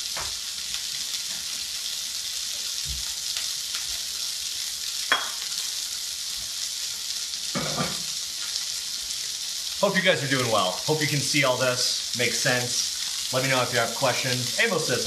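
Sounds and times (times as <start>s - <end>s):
shrimp sizzling in oil: 0.0s - 15.0s
ceramic plate clink: 5.1s - 5.4s.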